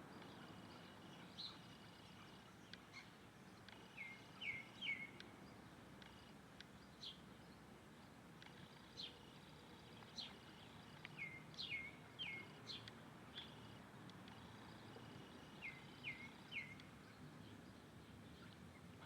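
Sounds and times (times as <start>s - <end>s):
steady background hiss: 0.0s - 19.0s
small bird chirping: 8.5s - 18.9s.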